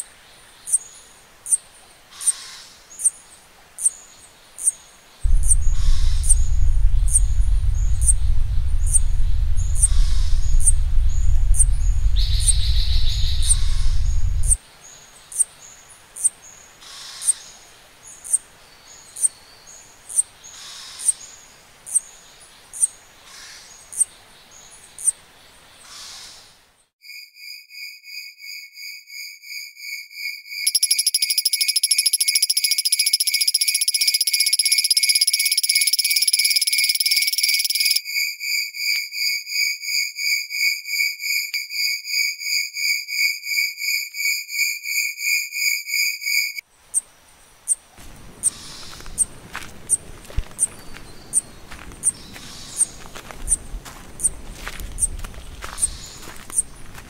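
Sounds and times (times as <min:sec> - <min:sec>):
low rumble: 0:05.3 - 0:14.6
short high chirps: 0:30.6 - 0:38.0
pulsing high trill: 0:30.7 - 0:38.0.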